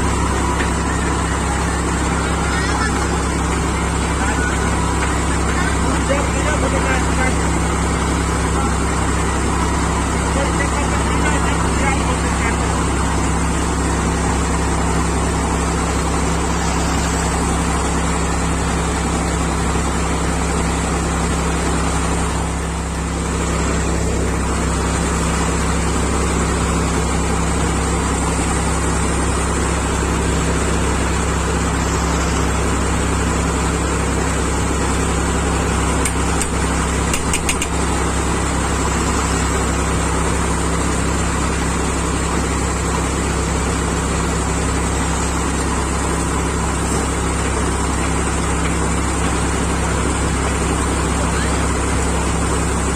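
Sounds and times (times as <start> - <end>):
tractor engine running: 0.0 - 52.9
sharp clicks: 36.0 - 37.8.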